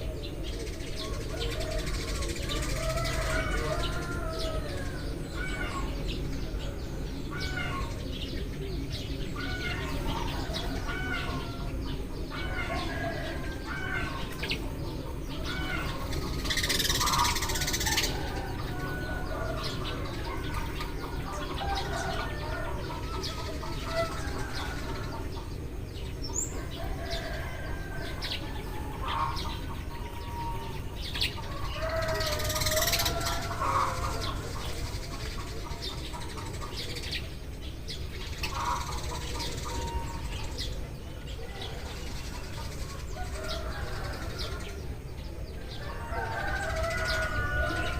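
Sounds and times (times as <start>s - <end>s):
sparrows chirping: 0.0s - 47.9s.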